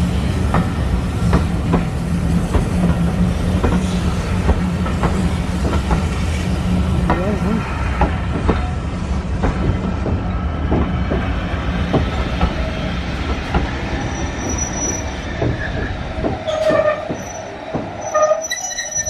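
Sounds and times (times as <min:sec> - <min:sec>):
train coaches rumbling past: 0:00.0 - 0:19.0
wheels clacking over rail joints: 0:08.0 - 0:19.0
wheel squeal: 0:13.9 - 0:19.0.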